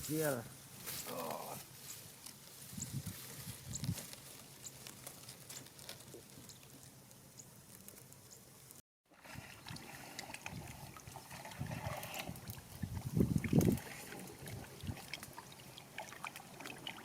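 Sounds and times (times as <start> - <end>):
small ticks: 4.6 - 8.8
water splashing and trickling: 9.1 - 17.0.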